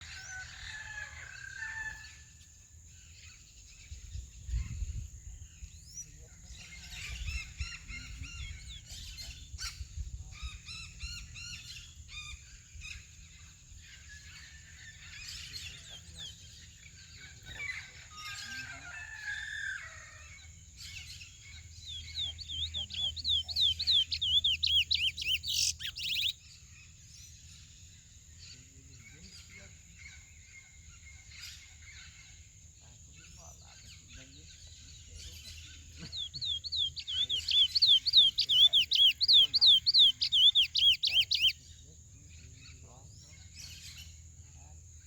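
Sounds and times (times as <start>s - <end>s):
finch singing whistled notes: 20.9s - 26.4s, 34.6s - 41.6s.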